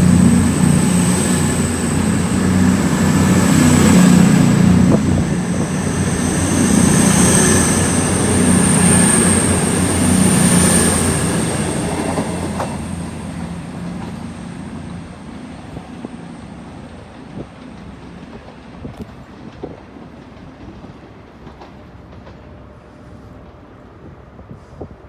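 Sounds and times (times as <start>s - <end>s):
thin high whine: 0.0s - 15.2s
diesel train engines rumbling: 0.0s - 25.0s.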